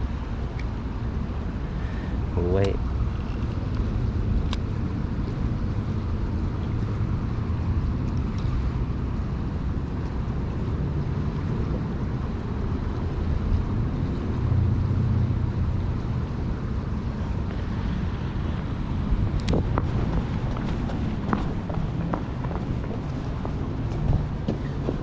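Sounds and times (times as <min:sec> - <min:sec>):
wind buffeting microphone: 0:15.4 - 0:25.0.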